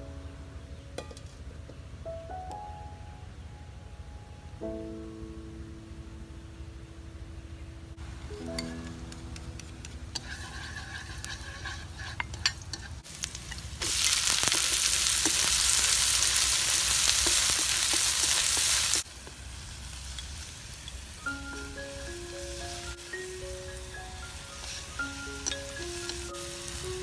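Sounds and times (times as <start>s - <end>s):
ingredients sizzling in hot oil: 10.1s - 27.0s.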